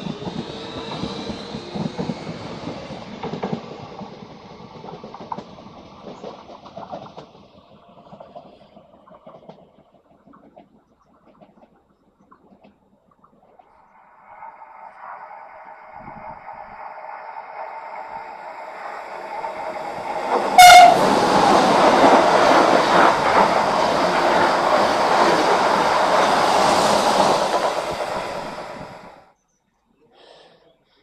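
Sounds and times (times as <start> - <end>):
train approaching with rising hum: 0.0 - 9.5, 13.8 - 29.3
wheel and rail noise: 0.0 - 11.8, 13.4 - 29.3
train horn blast: 20.5 - 22.2.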